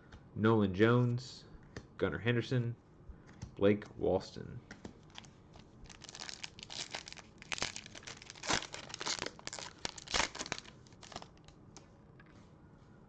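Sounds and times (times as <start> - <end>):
foil wrapper crinkling and tearing: 5.1 - 11.6.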